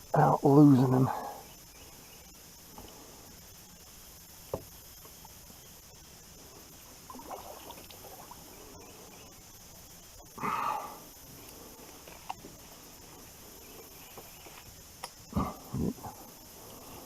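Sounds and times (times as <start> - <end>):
water splashing and trickling: 7.0 - 8.6.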